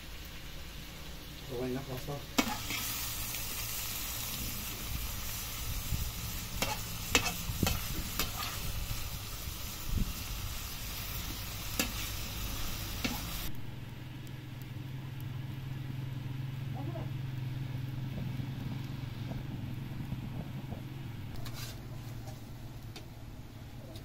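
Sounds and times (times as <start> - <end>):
food sizzling in a pan: 0.0 - 13.5.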